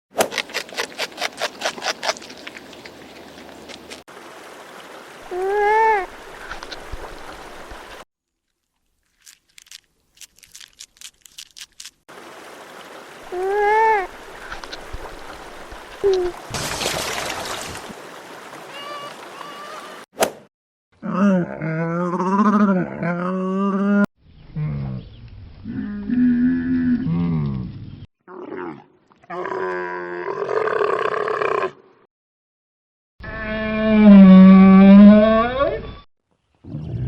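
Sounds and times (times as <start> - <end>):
trickle of running water: 1.9 - 20.0
loud splash-like rush: 16.4 - 18.8.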